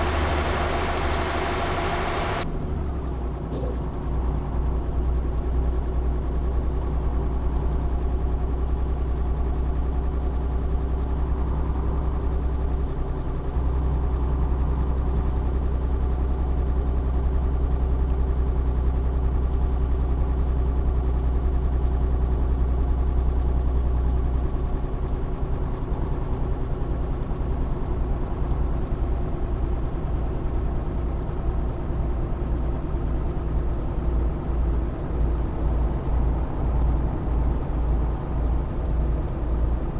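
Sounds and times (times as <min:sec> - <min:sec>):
truck engine drone: 0:00.0 - 0:02.4.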